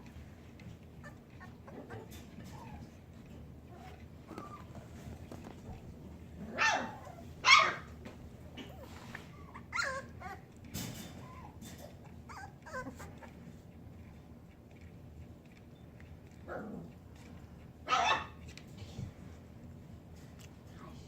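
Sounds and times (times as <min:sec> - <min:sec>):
puppies yipping: 0:01.0 - 0:03.0, 0:03.7 - 0:05.8, 0:06.6 - 0:07.9, 0:08.6 - 0:10.5, 0:11.2 - 0:13.4, 0:17.9 - 0:18.4
puppies whimpering: 0:01.0 - 0:05.8, 0:08.6 - 0:13.6.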